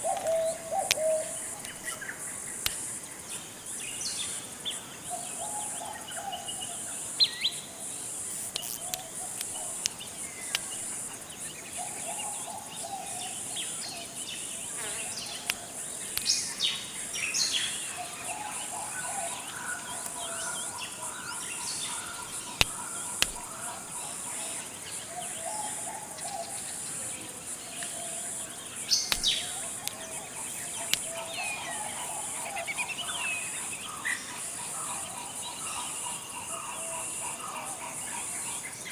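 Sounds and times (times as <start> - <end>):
bird calls and chirps: 0.0 - 38.9
high-pitched insect drone: 7.0 - 24.7
sharp clicks: 8.2 - 11.0, 21.9 - 23.8, 28.9 - 31.4.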